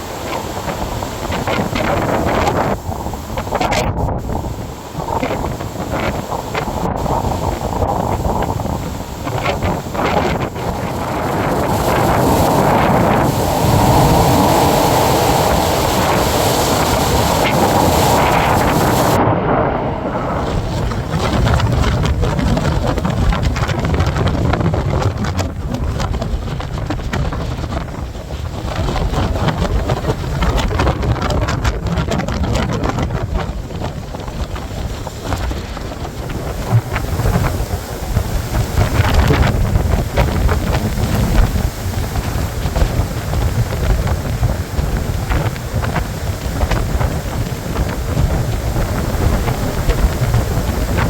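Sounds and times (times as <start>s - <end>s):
crackles: 0.0s - 27.2s
blizzard wind buffeting microphone: 0.0s - 51.0s.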